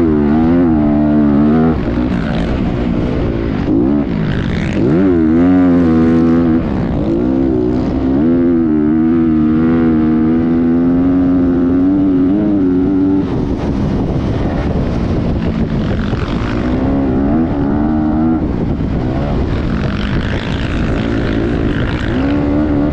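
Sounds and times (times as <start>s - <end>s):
dirt bike engine revving: 0.0s - 22.9s.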